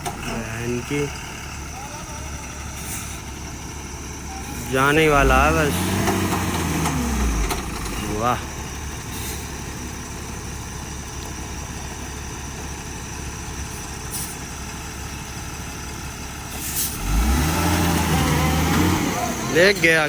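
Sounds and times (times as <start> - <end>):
truck engine running: 0.0 - 20.0
short air hiss: 16.6 - 17.0.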